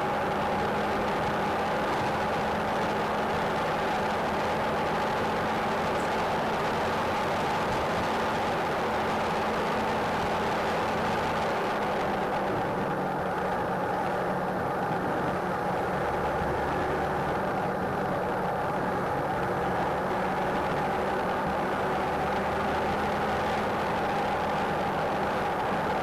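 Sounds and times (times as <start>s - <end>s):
car driving at high speed: 0.0s - 26.0s.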